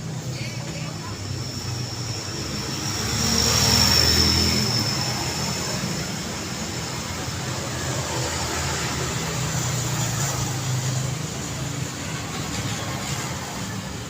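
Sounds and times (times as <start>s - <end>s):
steady traffic hum: 0.0s - 14.0s
vehicle passing close by: 1.8s - 11.0s.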